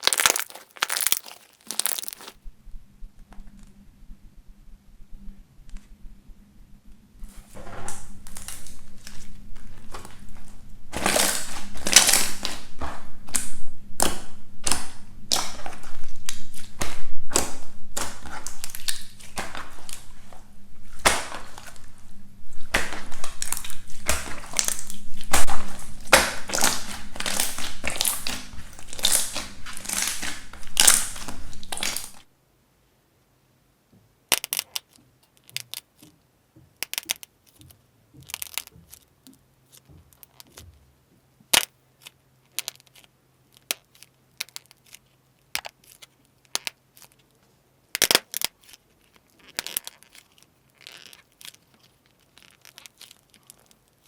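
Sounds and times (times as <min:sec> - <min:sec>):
slime crackling and popping: 0:00.0 - 0:02.4, 0:10.9 - 0:20.3, 0:22.7 - 0:32.3.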